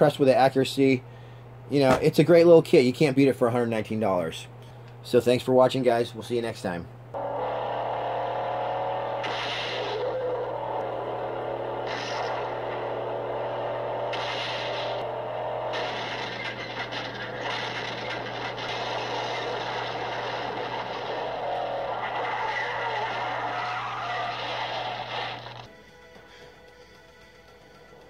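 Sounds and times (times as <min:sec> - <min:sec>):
low hum: 0:06.9 - 0:28.0
car engine revving: 0:07.2 - 0:25.7
tyres skidding: 0:07.2 - 0:25.7.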